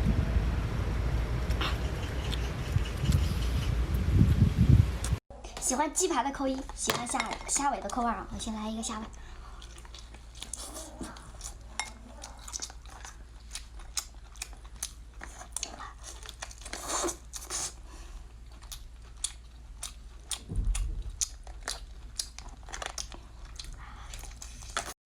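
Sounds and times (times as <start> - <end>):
person chewing crunchy food: 9.1 - 24.9
dull low bump: 20.4 - 21.5.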